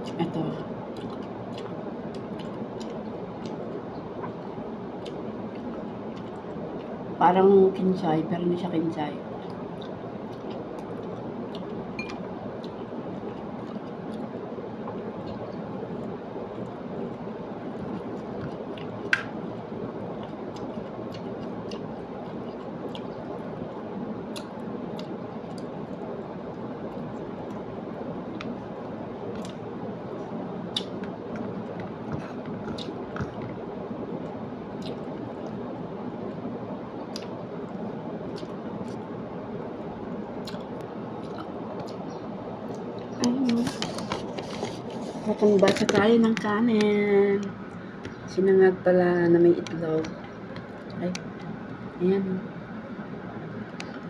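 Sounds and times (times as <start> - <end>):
person chewing food: 0.9 - 7.2, 9.4 - 36.4, 37.0 - 39.1, 39.8 - 46.0.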